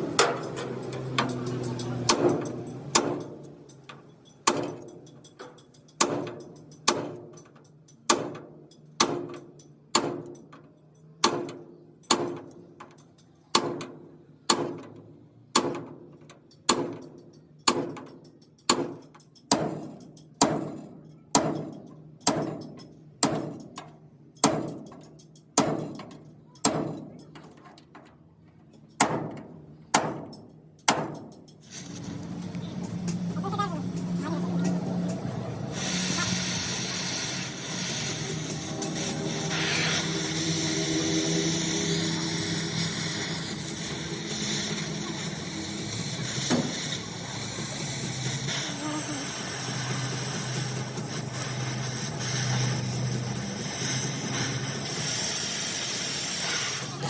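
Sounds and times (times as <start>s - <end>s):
hammer striking metal: 0.0s - 10.6s, 11.2s - 27.6s, 28.8s - 31.6s.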